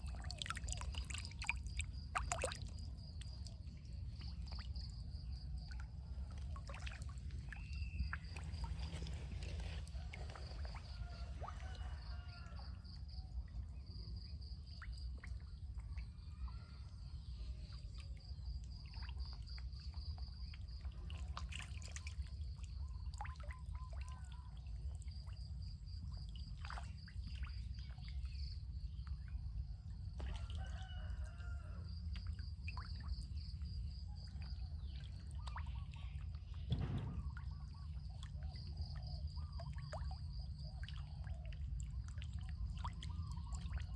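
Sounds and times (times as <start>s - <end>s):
water trickling: 0.0s - 12.5s
steady low rumble: 36.4s - 39.5s
loud thump: 36.7s - 37.6s.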